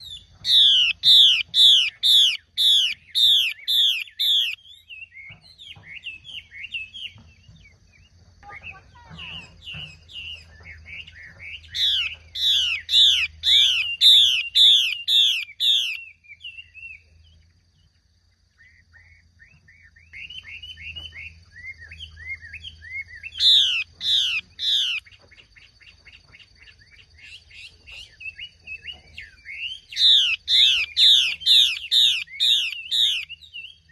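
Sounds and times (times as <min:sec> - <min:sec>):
soft bird twittering: 0:00.0 - 0:33.9
bird whistling down-slurred notes: 0:20.0 - 0:25.0.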